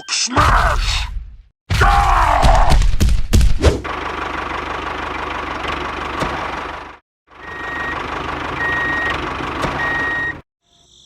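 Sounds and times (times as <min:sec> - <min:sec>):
vehicle engine running: 0:03.8 - 0:10.4
reversing alarm beeps: 0:07.4 - 0:08.0, 0:08.6 - 0:09.2, 0:09.8 - 0:10.4.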